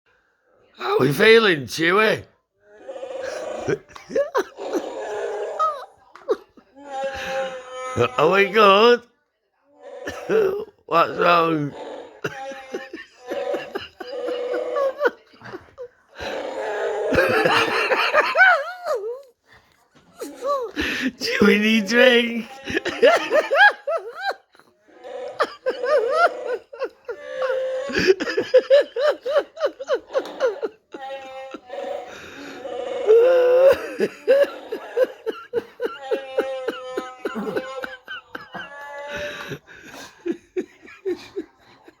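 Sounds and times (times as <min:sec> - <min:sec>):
creature growls and roars: 0:02.7 - 0:05.9, 0:09.8 - 0:15.2, 0:16.2 - 0:18.2, 0:24.9 - 0:28.2, 0:31.6 - 0:35.2
woman laughing hard: 0:12.2 - 0:15.9, 0:17.1 - 0:19.2, 0:22.6 - 0:24.7, 0:25.3 - 0:32.2, 0:33.3 - 0:42.0.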